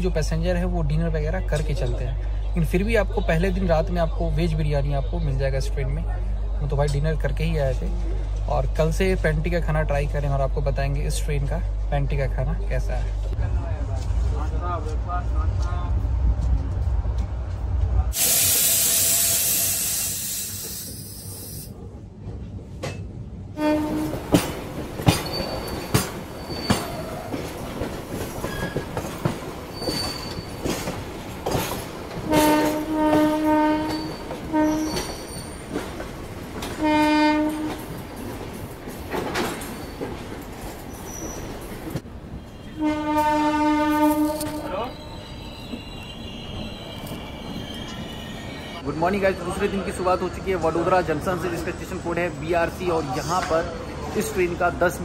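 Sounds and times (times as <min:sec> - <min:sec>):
train wheels clicking and squealing: 0:18.2 - 0:21.8, 0:23.8 - 0:36.8, 0:37.6 - 0:55.0
train horn blasts: 0:23.6 - 0:24.4, 0:32.2 - 0:35.2, 0:36.7 - 0:37.9, 0:42.4 - 0:45.0.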